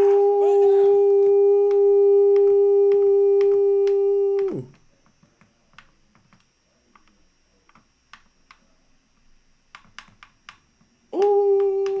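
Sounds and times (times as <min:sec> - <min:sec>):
computer keyboard clicks: 0:01.7 - 0:08.7, 0:09.7 - 0:12.0.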